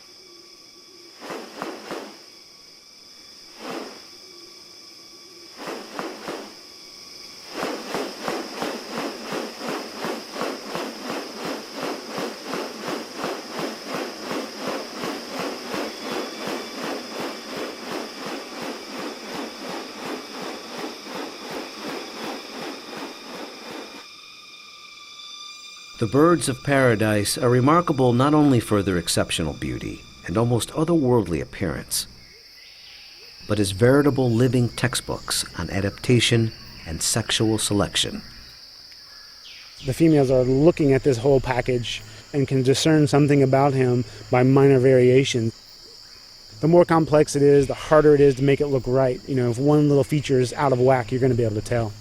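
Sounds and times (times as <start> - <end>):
insects buzzing: 0.0 - 52.0
rustles: 1.1 - 2.4, 3.5 - 4.2, 5.4 - 24.2
rhythmic swishing: 7.4 - 24.1.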